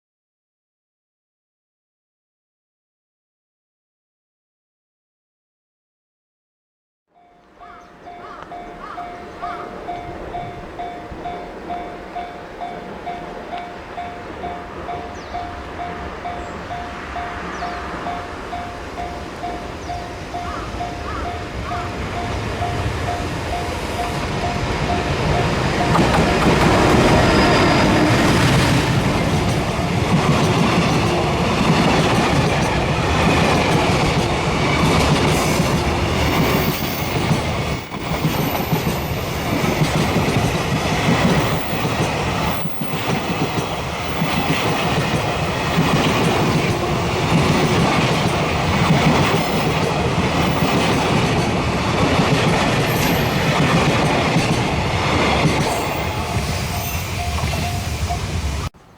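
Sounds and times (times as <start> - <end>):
train wheels rumbling on rails: 8.2 - 58.9.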